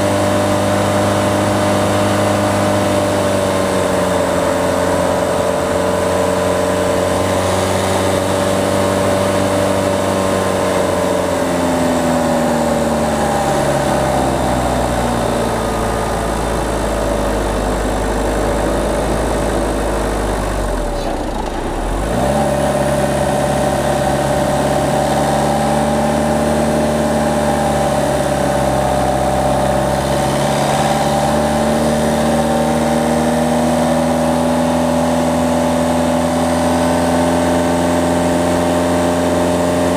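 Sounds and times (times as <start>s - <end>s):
diesel car engine running: 0.0s - 39.9s.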